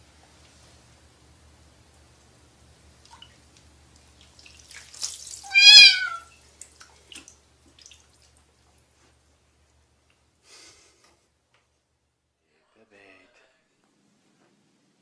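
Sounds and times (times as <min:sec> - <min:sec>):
cat meowing: 0:05.4 - 0:06.3.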